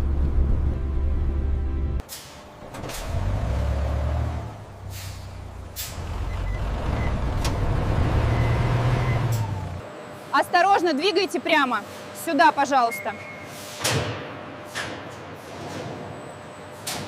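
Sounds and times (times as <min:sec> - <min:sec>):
heavy vehicle engine running: 0:00.0 - 0:09.9
air brake hisses: 0:02.0 - 0:02.5, 0:04.8 - 0:06.1, 0:13.4 - 0:13.9.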